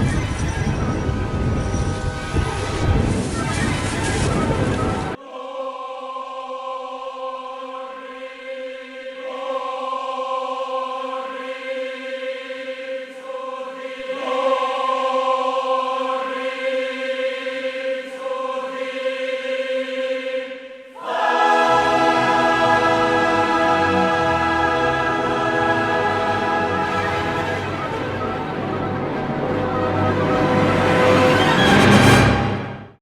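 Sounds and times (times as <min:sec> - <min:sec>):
choir holding sustained chords: 0:21.0 - 0:33.0
orchestral passage with deep bass: 0:21.1 - 0:33.0.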